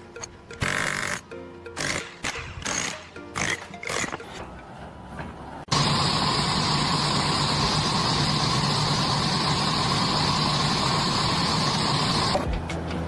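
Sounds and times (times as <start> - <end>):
machine engine running: 5.7 - 12.4.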